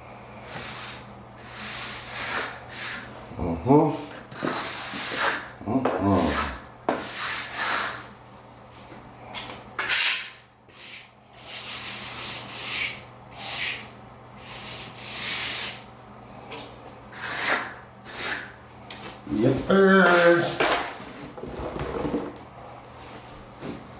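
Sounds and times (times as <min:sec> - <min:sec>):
trowel scraping mortar: 0:04.1 - 0:08.1, 0:17.2 - 0:18.5.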